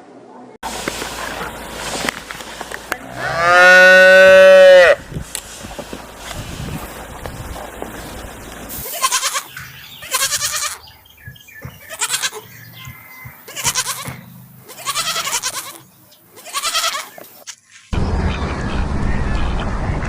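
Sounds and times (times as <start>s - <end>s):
goat bleating: 3.0s - 5.0s, 8.8s - 10.9s, 11.8s - 12.5s, 13.5s - 17.2s.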